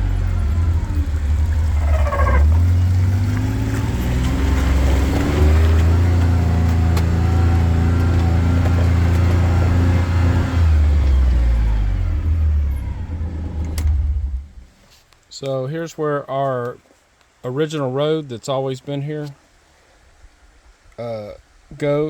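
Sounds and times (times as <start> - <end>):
vehicle engine rumbling while driving: 0.0 - 15.1.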